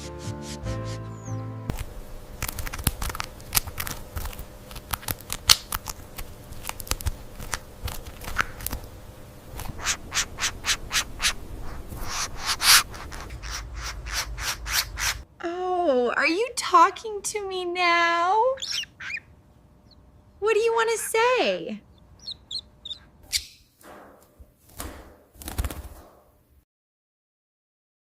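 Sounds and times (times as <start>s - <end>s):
scraping strokes: 9.6s - 15.2s.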